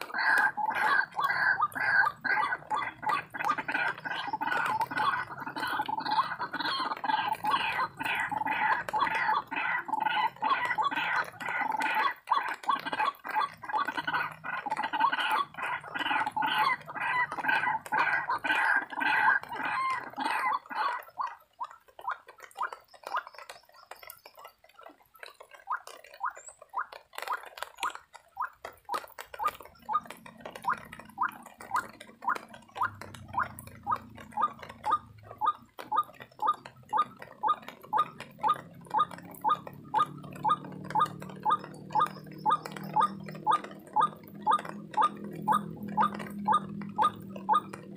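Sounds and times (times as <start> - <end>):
waterhen short calls: 0.0 - 23.5
waterhen gargling croaks: 0.0 - 47.9.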